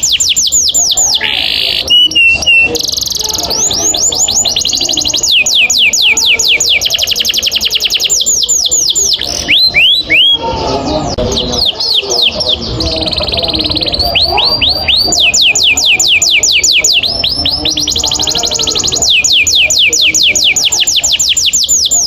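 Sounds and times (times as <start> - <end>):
canary singing: 0.0 - 22.0.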